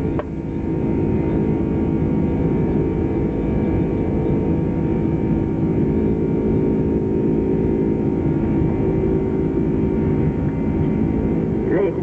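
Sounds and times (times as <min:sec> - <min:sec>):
jet engines droning: 0:00.0 - 0:12.0
steady hums: 0:00.0 - 0:12.0.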